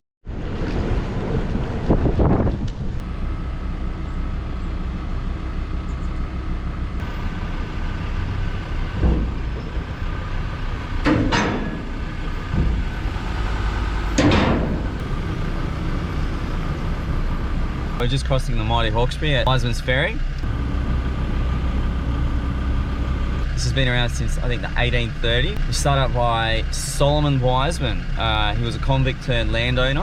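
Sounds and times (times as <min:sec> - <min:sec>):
vehicle rumble: 0:00.2 - 0:30.0
loud clunks: 0:08.9 - 0:09.9, 0:11.0 - 0:15.7
faint steady tones: 0:12.3 - 0:29.9.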